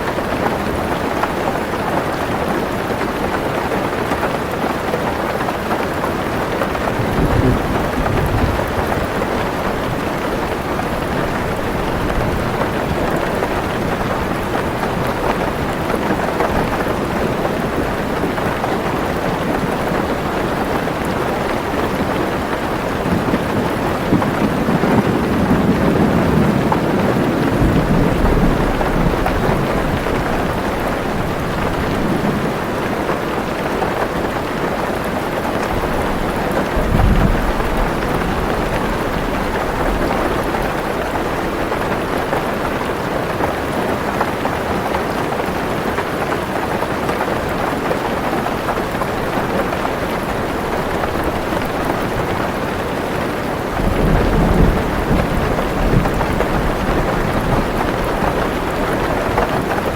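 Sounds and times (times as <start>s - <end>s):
heavy rain on a car roof: 0.0s - 59.9s
thunder rumbling: 6.4s - 42.6s, 48.5s - 59.9s.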